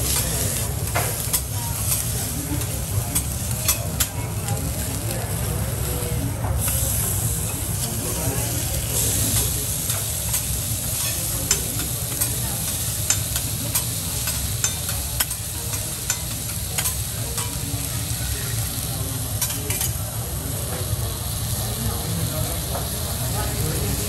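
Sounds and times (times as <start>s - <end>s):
food sizzling on a griddle: 0.0s - 24.0s
metal spatulas scraping and clicking: 9.0s - 17.6s.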